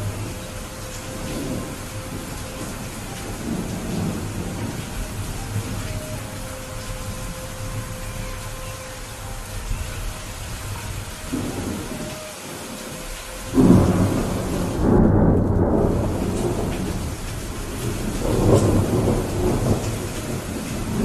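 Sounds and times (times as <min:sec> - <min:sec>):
rolling thunder rumble: 0:00.0 - 0:08.7, 0:09.4 - 0:21.0
rain falling: 0:00.0 - 0:21.0.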